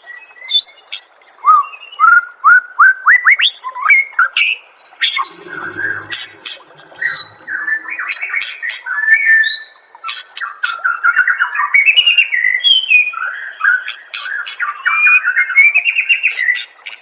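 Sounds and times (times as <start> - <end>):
bird singing: 4.8 - 17.0
sharp bird clicks: 13.9 - 14.7.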